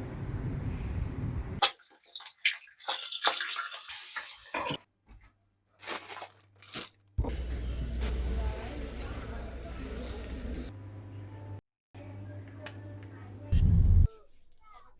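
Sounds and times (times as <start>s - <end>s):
steady low noise: 13.6s - 14.1s.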